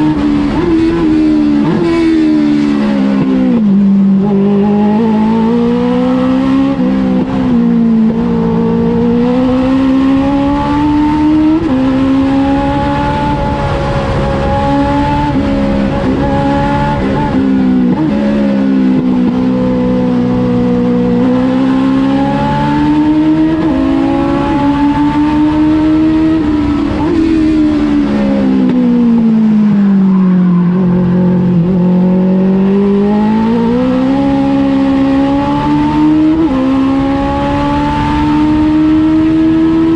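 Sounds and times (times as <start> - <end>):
race car engine at speed: 0.0 - 39.9.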